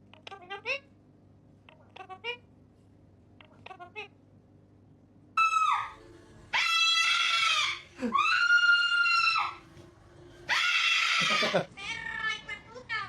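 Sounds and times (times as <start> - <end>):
parrot screaming: 5.4 - 9.6, 10.5 - 12.3.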